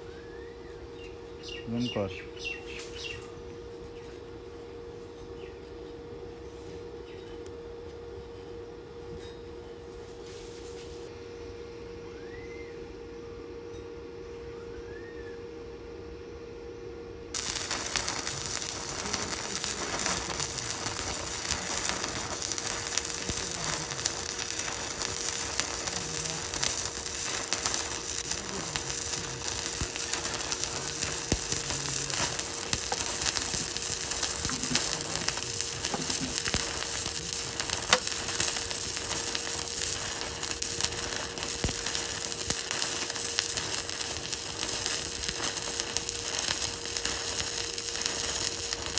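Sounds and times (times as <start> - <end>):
steady hum: 15.4 - 48.9
welding arc crackling: 17.4 - 48.9.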